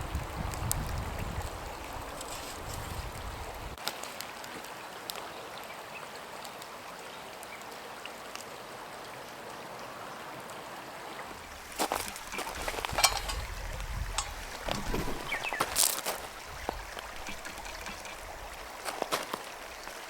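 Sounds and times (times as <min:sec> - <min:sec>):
flowing water: 0:00.0 - 0:20.0
clicks and knocks: 0:11.3 - 0:19.5.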